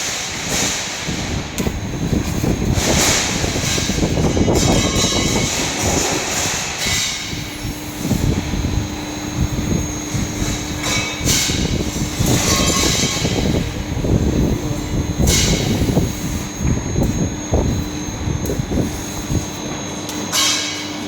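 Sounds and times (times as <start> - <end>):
laser cutting machine rumble: 0.0 - 21.0
steady hum: 0.0 - 21.0.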